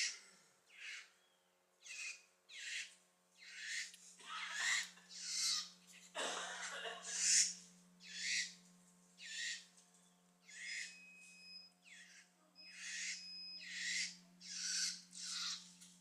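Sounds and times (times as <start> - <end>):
harsh hissing bird calls: 0.0 - 1.2, 1.8 - 5.8, 7.1 - 8.6, 9.2 - 9.7, 10.4 - 10.9, 11.9 - 15.7.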